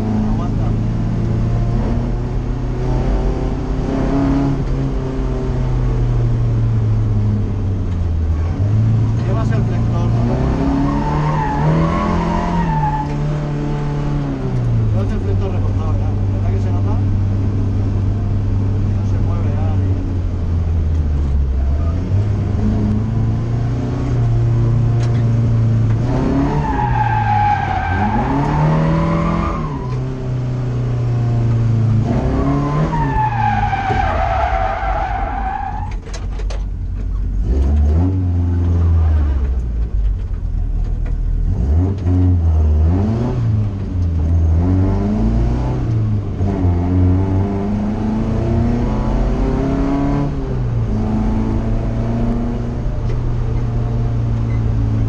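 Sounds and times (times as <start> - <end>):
car engine revving: 0.0 - 36.0, 37.1 - 55.0
tyres squealing: 32.6 - 36.0.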